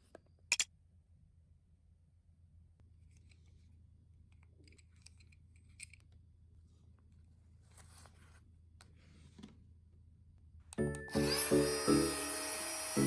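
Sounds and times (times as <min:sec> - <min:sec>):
light handling clicks and rustles: 0:04.3 - 0:06.2.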